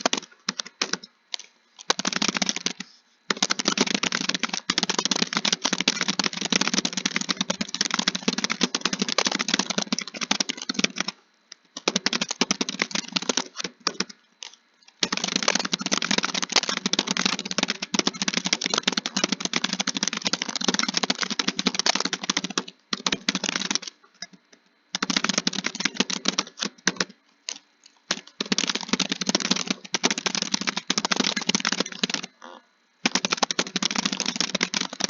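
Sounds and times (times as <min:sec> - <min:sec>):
keyboard typing clicks: 0:25.0 - 0:32.3.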